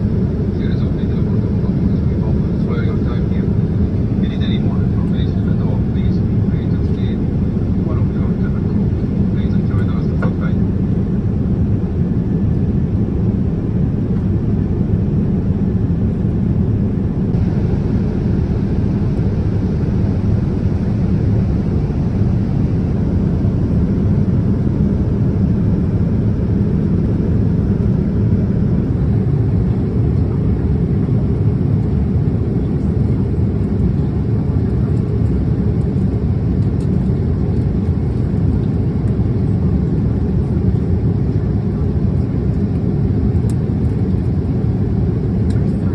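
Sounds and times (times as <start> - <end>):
airliner cabin noise: 0.0 - 45.9.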